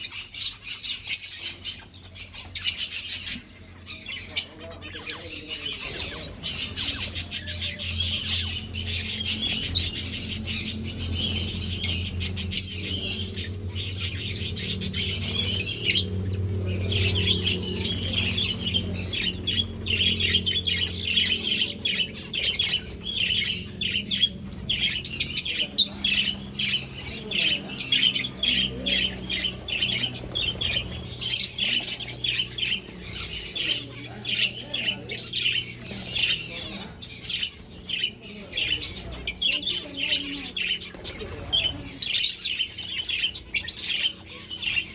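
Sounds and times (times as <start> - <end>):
finches chirping: 0.0 - 44.9.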